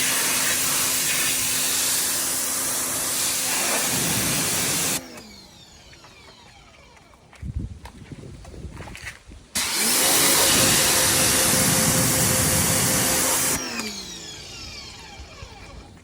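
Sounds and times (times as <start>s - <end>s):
pressure washer spraying hiss: 0.0s - 5.0s, 9.6s - 13.7s
pressure washer motor whine: 0.0s - 7.2s, 9.6s - 16.0s.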